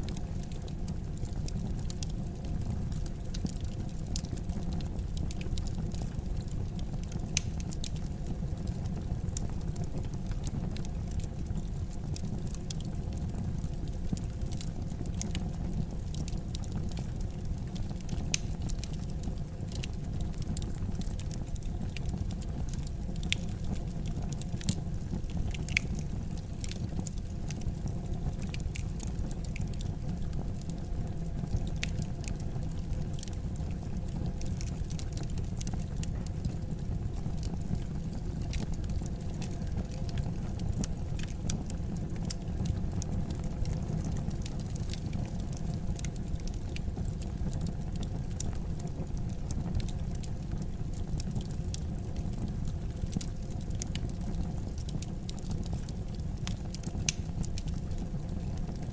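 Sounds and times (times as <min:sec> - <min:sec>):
low rumble of flames: 0:00.0 - 0:58.9
wood fire crackling: 0:00.0 - 0:58.9.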